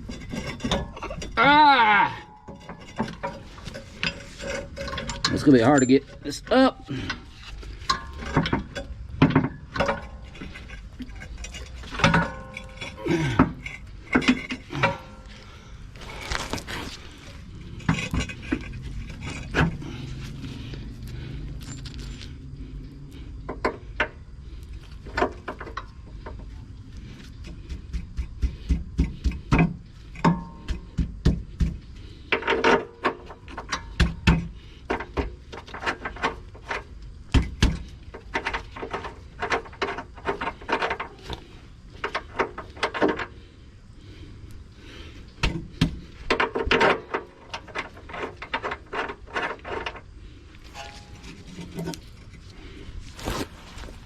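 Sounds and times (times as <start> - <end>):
metal knocks and clanks: 2.4 - 6.4, 7.8 - 15.3.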